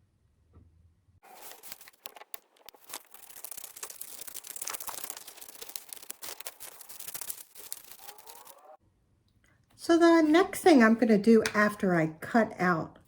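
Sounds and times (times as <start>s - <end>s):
scissors cutting paper: 1.2s - 8.6s
paper rustling: 1.2s - 8.8s.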